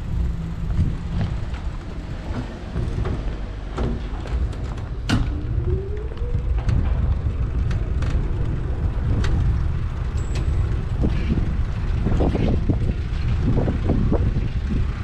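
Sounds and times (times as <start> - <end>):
wind and road rumble: 0.0 - 15.0
light clicks and rattles: 0.8 - 15.0
rising tone: 4.4 - 11.0.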